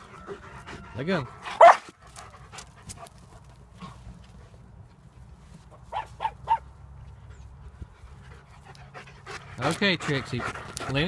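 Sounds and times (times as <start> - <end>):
dog barking: 1.6 - 1.9, 5.9 - 6.6
dogs scuffing and clicking: 8.6 - 11.0.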